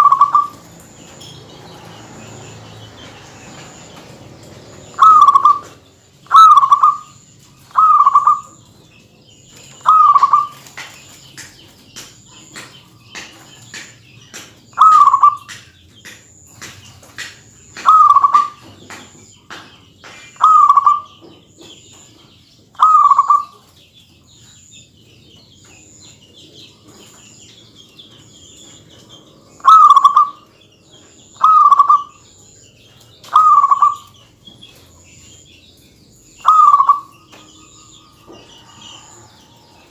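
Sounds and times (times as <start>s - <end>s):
dove cooing: 0.0s - 0.6s, 4.9s - 8.6s, 9.8s - 10.6s, 14.8s - 15.6s, 17.8s - 18.6s, 20.4s - 21.2s, 22.8s - 23.6s, 29.6s - 30.4s, 31.4s - 32.2s, 33.2s - 34.1s, 36.4s - 37.3s.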